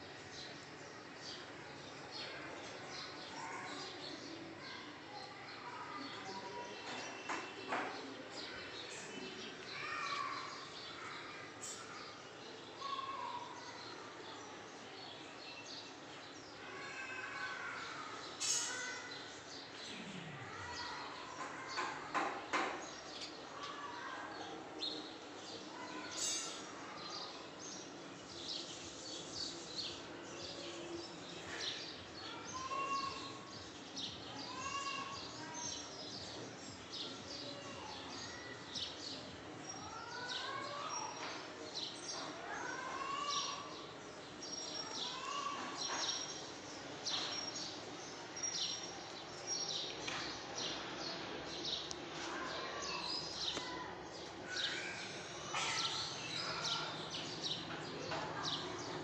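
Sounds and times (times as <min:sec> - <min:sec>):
birds chirping: 0:16.7 - 0:24.2, 0:24.9 - 0:59.0.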